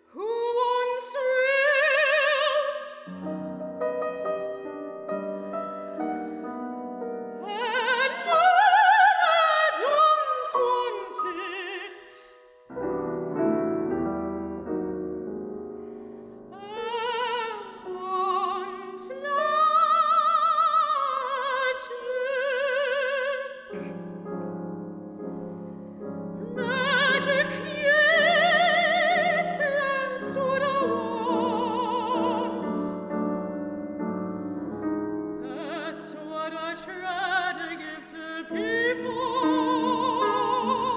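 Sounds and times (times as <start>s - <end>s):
soprano singing opera: 0.0s - 3.6s, 7.3s - 12.5s, 16.5s - 24.2s, 25.4s - 33.7s, 34.4s - 40.9s
piano chords: 3.1s - 11.9s, 12.6s - 20.6s, 23.7s - 40.9s.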